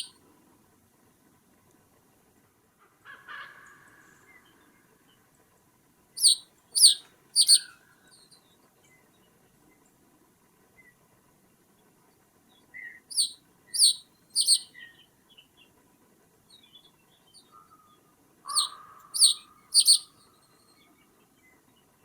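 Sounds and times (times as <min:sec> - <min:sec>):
bird calling sharp notes: 0:06.2 - 0:07.8, 0:13.1 - 0:14.7, 0:18.5 - 0:20.1.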